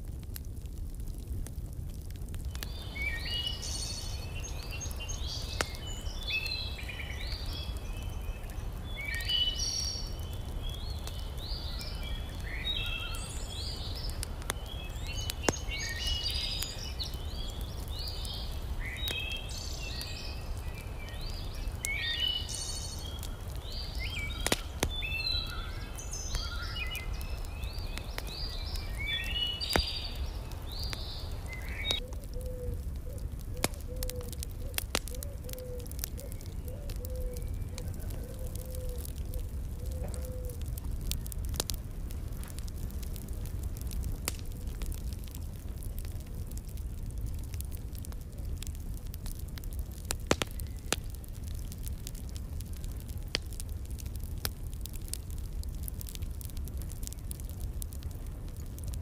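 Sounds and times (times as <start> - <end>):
songbirds chirping and singing: 2.5 - 41.3.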